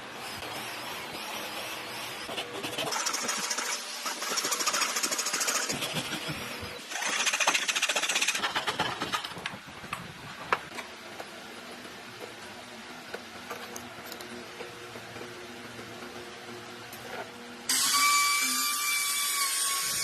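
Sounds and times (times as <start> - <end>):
power tool rattling on wood: 6.9 - 9.5.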